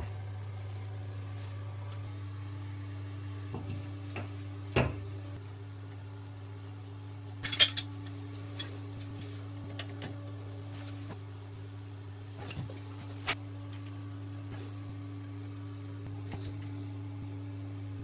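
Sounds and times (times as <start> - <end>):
tools and fittings clinking: 7.4 - 9.9.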